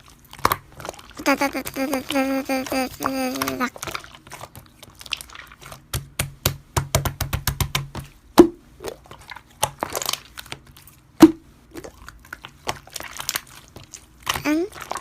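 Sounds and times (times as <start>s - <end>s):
crunchy slime crackling: 8.8s - 11.0s.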